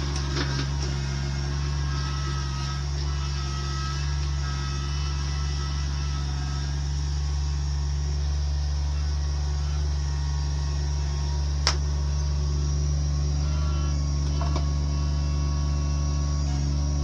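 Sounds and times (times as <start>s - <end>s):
machine engine droning: 0.0s - 17.0s.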